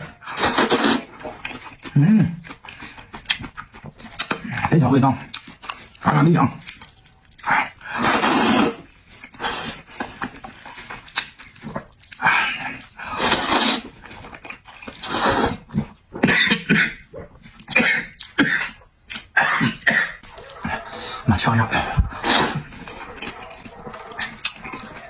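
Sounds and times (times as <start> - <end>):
person slurping noodles: 0.2 - 1.4, 7.8 - 9.9, 12.2 - 14.0, 15.0 - 15.7, 19.4 - 25.0.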